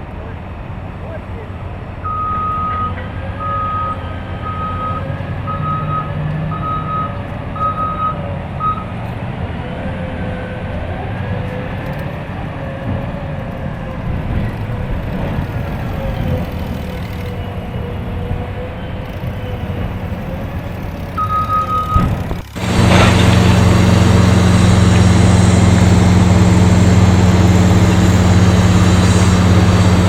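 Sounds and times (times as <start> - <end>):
low rumble of heavy machines: 0.0 - 30.0
reversing alarm beeping: 2.0 - 9.0, 21.1 - 22.1.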